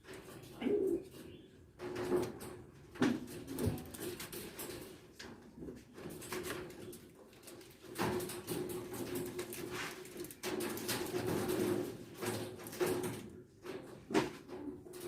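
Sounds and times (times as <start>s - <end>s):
pigeons cooing: 0.2s - 1.8s.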